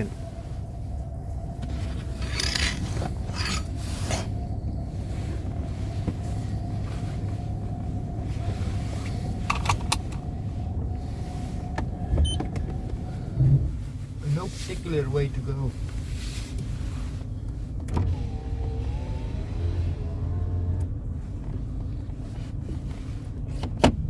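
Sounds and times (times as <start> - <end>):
car engine running: 0.0 - 24.0
scraping and clicking noises: 1.6 - 4.3.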